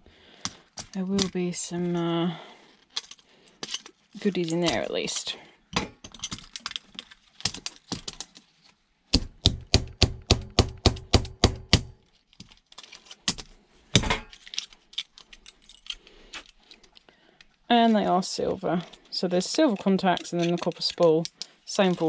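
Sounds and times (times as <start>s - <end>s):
hand tools clicking and snapping: 0.4s - 1.4s, 2.9s - 8.5s, 12.4s - 18.0s, 18.8s - 22.0s.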